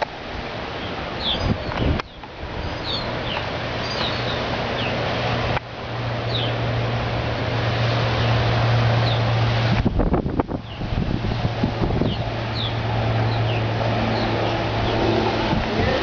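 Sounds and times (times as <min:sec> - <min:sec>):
wind-like rushing noise: 0:00.0 - 0:16.0
birds chirping: 0:00.7 - 0:05.1, 0:06.2 - 0:06.6, 0:07.8 - 0:09.4, 0:10.6 - 0:16.0.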